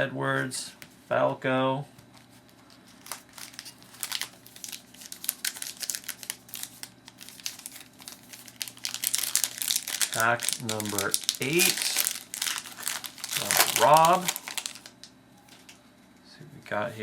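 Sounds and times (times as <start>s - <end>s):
wrapper crinkling and tearing: 2.9s - 15.8s.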